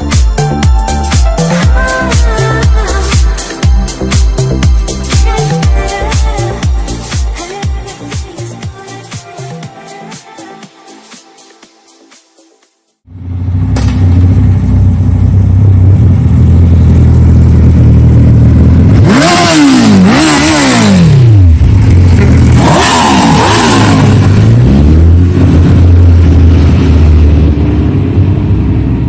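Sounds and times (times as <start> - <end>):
motorcycle engine revving: 13.0 - 29.0.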